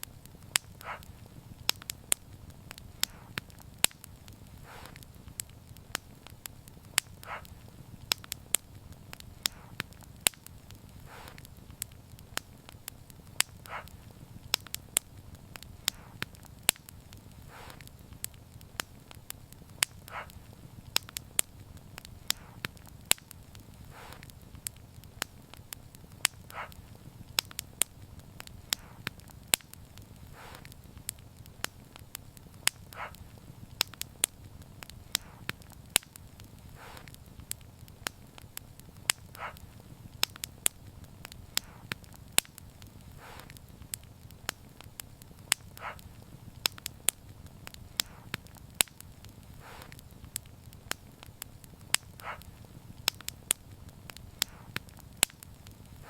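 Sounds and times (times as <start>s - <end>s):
sharp pops and snaps: 0.0s - 56.0s
soft hiss of fire: 0.0s - 56.0s
wood fire crackling: 0.0s - 56.0s.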